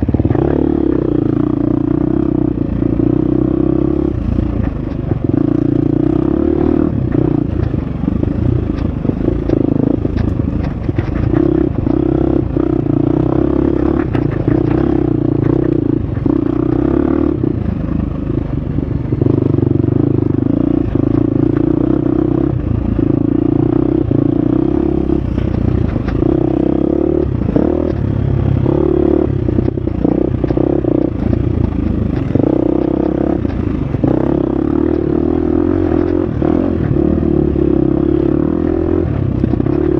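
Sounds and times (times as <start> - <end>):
dirt bike engine revving: 11.0 - 17.6, 19.1 - 39.9.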